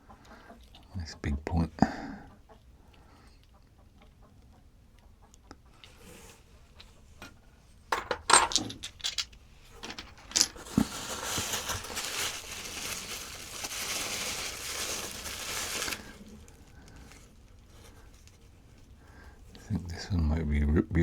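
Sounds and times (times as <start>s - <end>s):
stone arrowheads clinking: 8.0s - 10.8s
packing material rustling: 9.8s - 18.9s.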